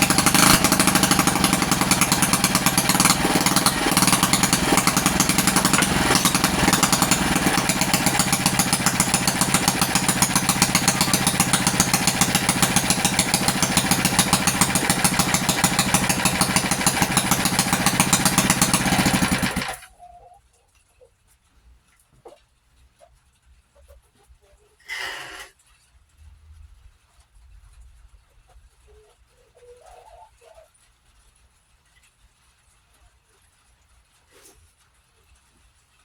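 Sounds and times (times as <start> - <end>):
small motorcycle engine running: 0.0 - 19.9.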